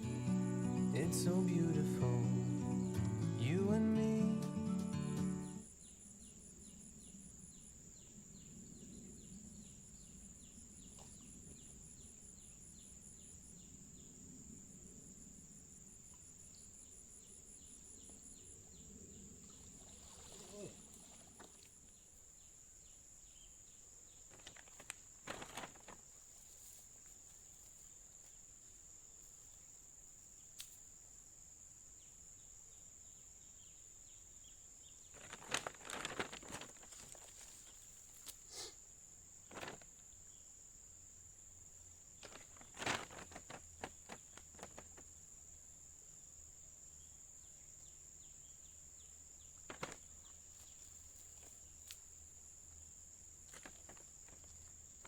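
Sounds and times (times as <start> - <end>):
brief rustles and knocks: 24.3 - 26.9, 42.2 - 45.1, 49.6 - 51.6.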